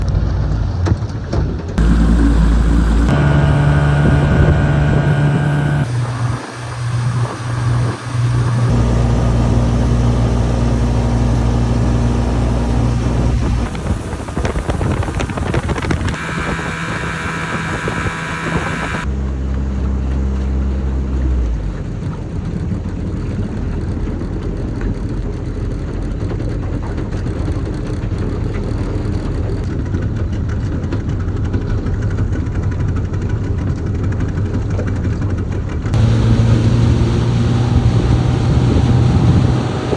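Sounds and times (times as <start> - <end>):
boat motor humming: 1.8 - 19.1, 36.0 - 39.9.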